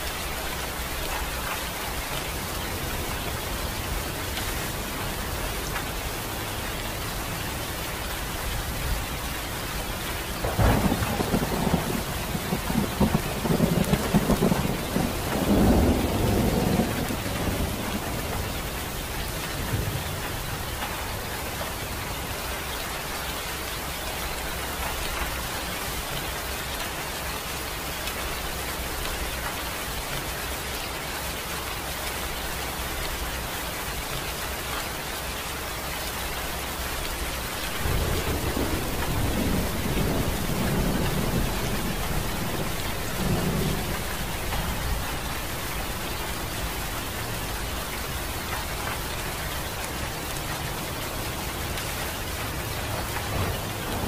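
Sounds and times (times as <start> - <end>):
steady rain hissing: 0.0 - 54.0
low thunder rumble: 10.3 - 20.8, 37.4 - 49.0, 53.1 - 54.0.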